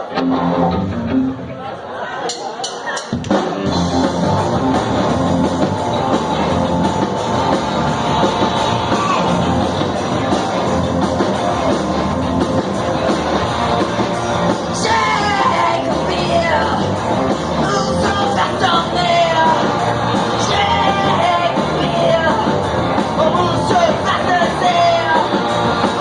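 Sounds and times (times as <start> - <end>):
live rock band playing: 0.0 - 26.0
person singing: 14.6 - 17.0, 17.6 - 26.0.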